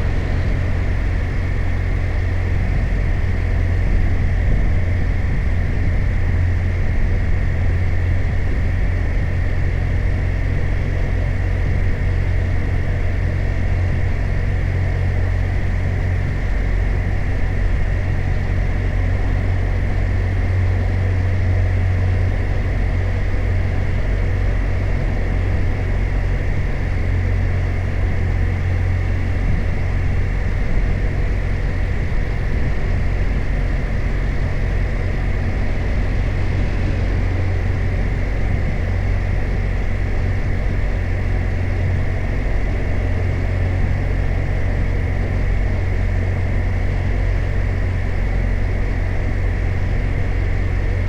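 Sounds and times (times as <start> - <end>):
motorcycle engine running: 0.0 - 11.4
wind and road noise: 0.0 - 51.0.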